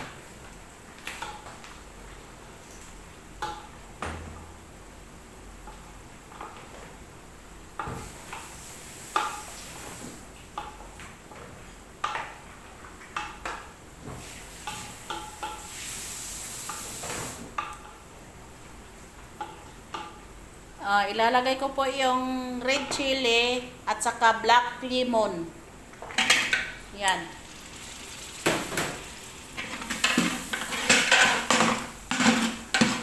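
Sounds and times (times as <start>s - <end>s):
food sizzling in oil: 7.8s - 10.3s, 14.0s - 17.6s, 26.0s - 33.0s
spoon scraping cooking pot: 27.3s - 33.0s.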